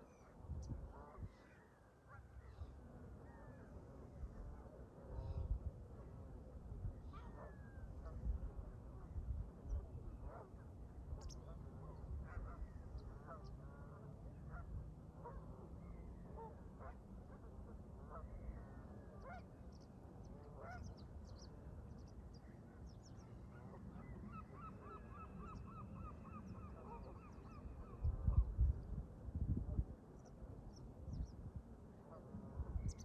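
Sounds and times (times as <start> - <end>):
wind on microphone: 0.3 - 1.4, 4.2 - 6.0, 6.6 - 13.2, 27.6 - 30.0, 32.4 - 33.0.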